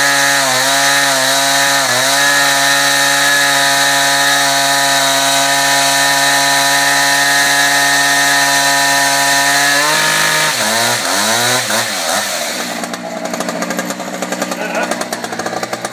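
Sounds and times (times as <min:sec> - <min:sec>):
concrete chainsaw running: 0:00.0 - 0:15.9.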